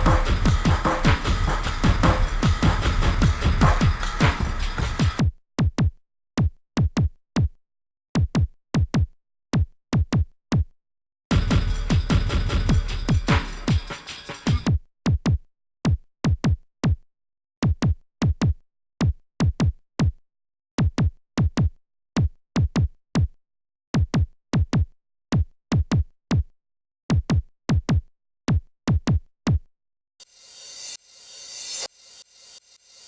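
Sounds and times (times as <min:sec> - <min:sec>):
electronic drum machine hits: 0:00.0 - 0:05.2, 0:11.3 - 0:14.7.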